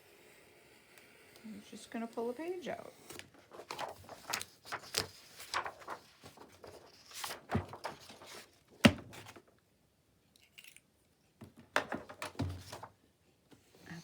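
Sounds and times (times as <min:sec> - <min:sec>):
paper rustling and crackling: 0:03.0 - 0:09.5, 0:11.9 - 0:12.9.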